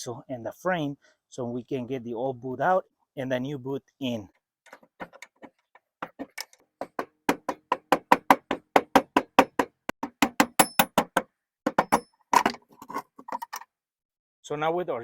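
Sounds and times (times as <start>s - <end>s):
sharp metallic clicks of hand tool: 10.2s - 11.1s.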